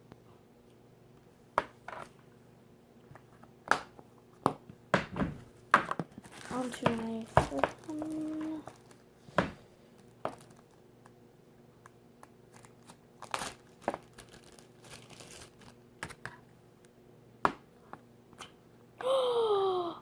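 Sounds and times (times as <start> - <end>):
plastic wrapping crackling: 6.1 - 9.1, 9.9 - 10.8, 12.5 - 16.2
person saying oh: 7.8 - 8.7, 19.0 - 20.0.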